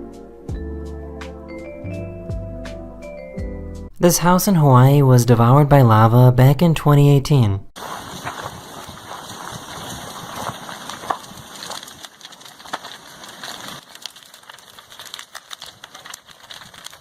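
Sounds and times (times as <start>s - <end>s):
wooden house burning and crackling: 7.8s - 17.0s.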